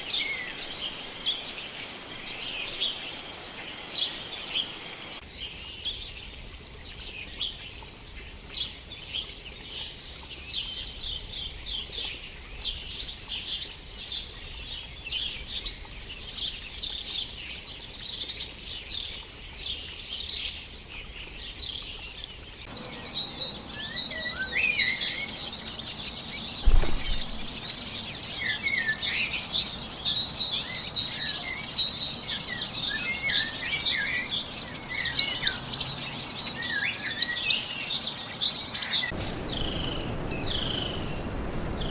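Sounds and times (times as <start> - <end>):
small birds chirping: 0.0 - 41.9
low thump: 26.6 - 27.6.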